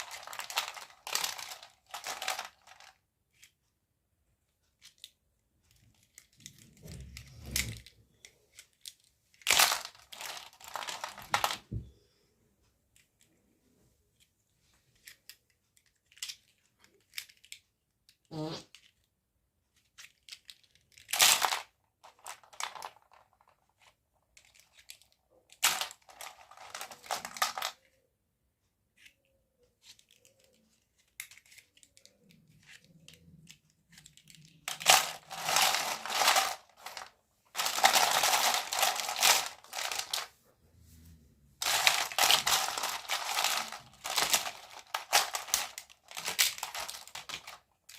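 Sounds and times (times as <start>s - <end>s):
plastic packaging crinkling: 0.0s - 2.9s, 8.8s - 11.8s, 20.2s - 23.6s, 25.6s - 27.8s, 31.2s - 40.3s, 41.6s - 47.9s
plastic pieces clicking: 0.0s - 3.6s, 4.7s - 11.9s, 14.9s - 19.1s, 19.7s - 28.1s, 29.0s - 40.3s, 41.6s - 47.9s.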